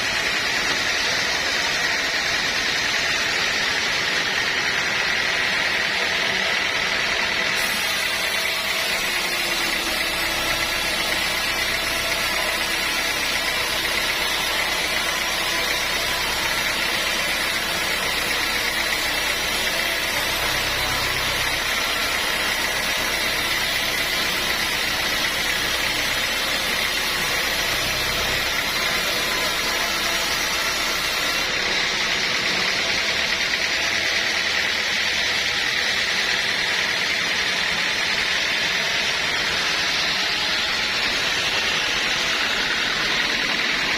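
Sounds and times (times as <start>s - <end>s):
high mechanical whine: 0.0s - 43.9s
sawmill machinery running: 0.0s - 43.9s.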